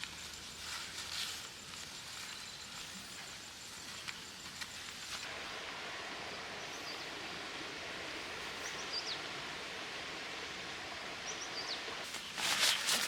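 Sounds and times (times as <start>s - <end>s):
loud rustle: 12.0s - 13.0s.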